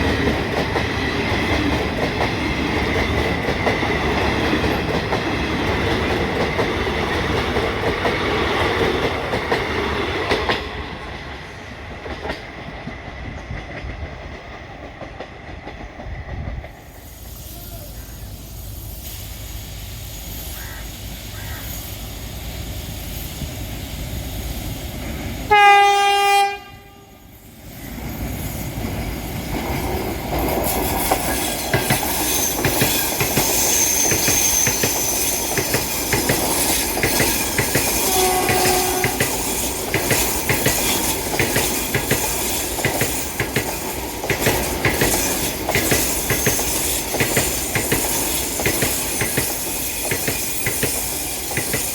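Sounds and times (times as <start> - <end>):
train wheel clatter: 0.0 - 17.6, 27.7 - 51.9
locomotive horn blast: 25.5 - 27.2, 38.0 - 39.3.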